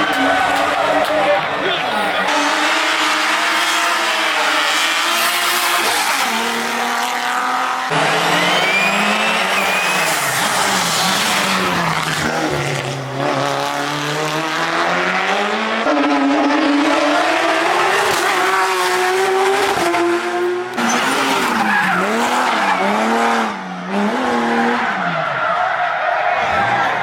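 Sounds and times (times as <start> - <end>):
race car engine accelerating: 1.9 - 25.2
tyre squeal: 8.3 - 11.9.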